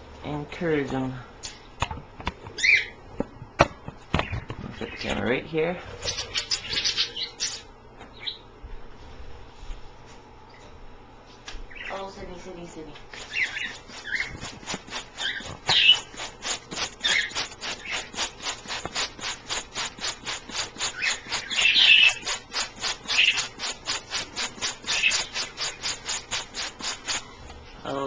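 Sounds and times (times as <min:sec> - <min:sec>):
high bird chirps: 0:06.0 - 0:08.5, 0:11.7 - 0:12.1, 0:13.2 - 0:18.3, 0:20.8 - 0:23.7, 0:24.4 - 0:26.2.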